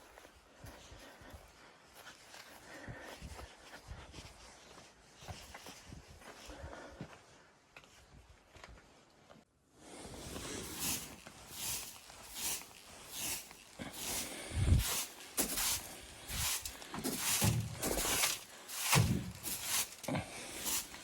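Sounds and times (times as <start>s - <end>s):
footsteps crunching through snow: 10.0s - 21.0s.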